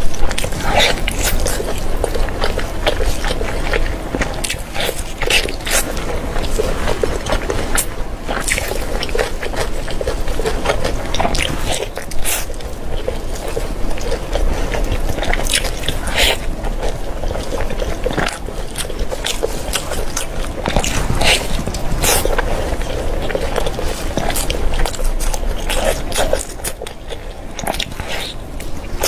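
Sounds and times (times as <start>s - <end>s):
biting and chewing food: 0.0s - 29.0s.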